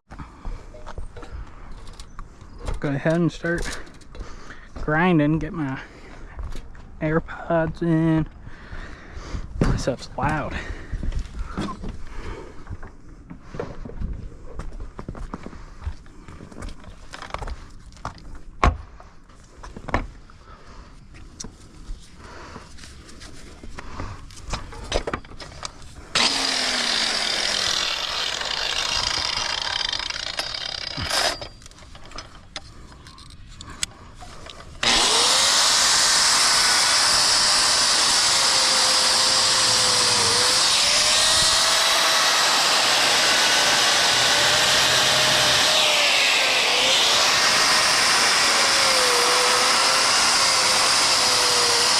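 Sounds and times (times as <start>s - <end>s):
angle grinder grinding mortar: 26.0s - 31.6s, 34.3s - 51.9s.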